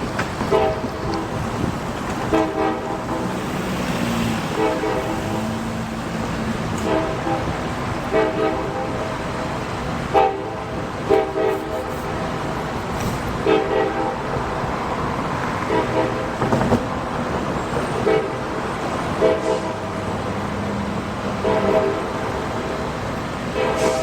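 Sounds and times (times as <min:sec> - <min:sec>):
rumble of passing train: 0:00.0 - 0:24.0
locomotive air horn blasts: 0:00.4 - 0:14.6, 0:15.5 - 0:16.6, 0:17.9 - 0:20.5, 0:21.2 - 0:24.0.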